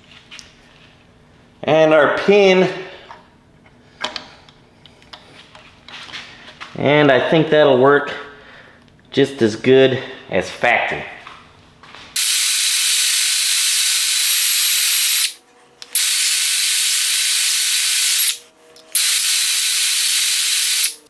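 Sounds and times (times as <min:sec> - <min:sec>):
pressurised air hissing from nozzle: 0:12.2 - 0:21.0.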